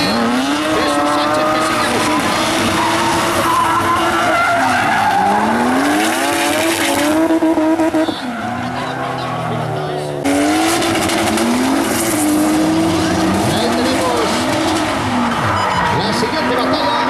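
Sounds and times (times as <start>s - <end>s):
tyres squealing on tarmac: 0.0s - 7.2s, 10.8s - 17.0s
car engine revving high: 0.0s - 17.0s.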